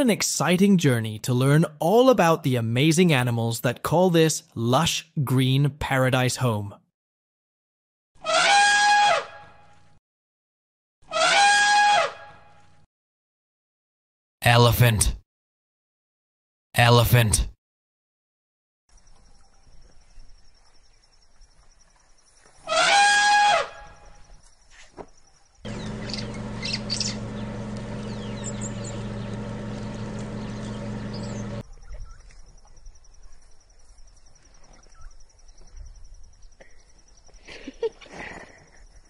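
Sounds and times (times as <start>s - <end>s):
elephant trumpeting: 8.2s - 9.4s, 11.1s - 12.2s
faint bird chirps: 18.9s - 22.7s, 23.9s - 27.3s, 30.0s - 37.5s
low hum with hiss: 25.7s - 31.6s.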